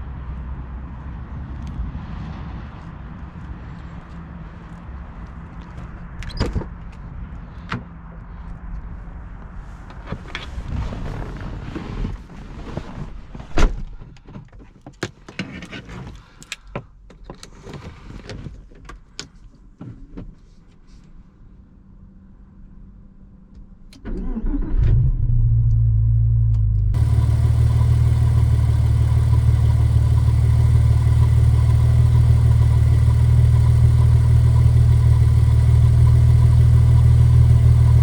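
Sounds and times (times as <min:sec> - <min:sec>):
low steady hum: 0:24.9 - 0:38.0.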